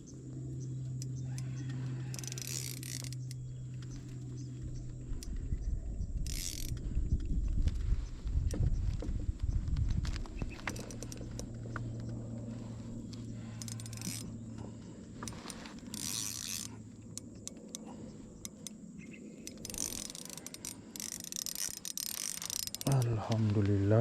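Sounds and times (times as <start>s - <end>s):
steady low hum: 0.0s - 24.0s
fishing reel clicking: 1.0s - 7.3s, 10.7s - 12.2s, 12.9s - 23.4s.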